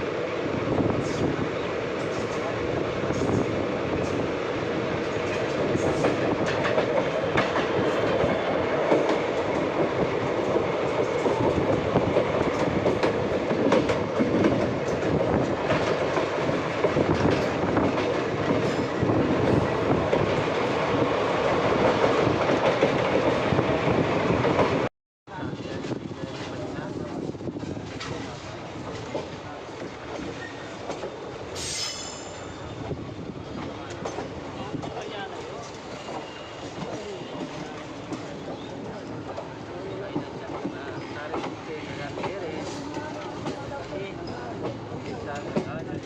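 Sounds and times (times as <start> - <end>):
train rumble: 0.0 - 46.0
wheels clacking over rail joints: 1.9 - 4.2, 5.0 - 21.0.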